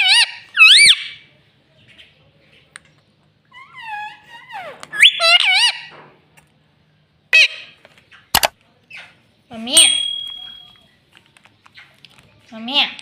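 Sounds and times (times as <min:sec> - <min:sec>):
parakeet shrill calls: 0:00.0 - 0:01.2, 0:03.6 - 0:05.9.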